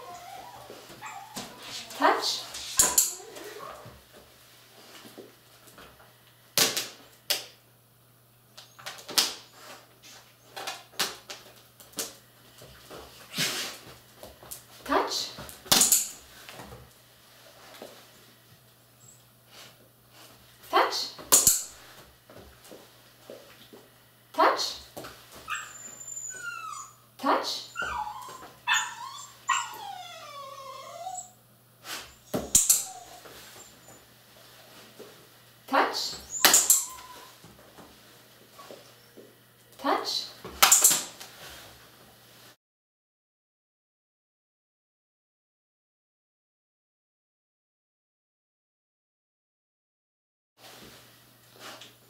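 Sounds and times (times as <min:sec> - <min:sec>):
dog whining and yipping: 0:00.0 - 0:03.9, 0:25.5 - 0:27.1, 0:27.7 - 0:31.4, 0:32.1 - 0:34.0, 0:36.1 - 0:37.4.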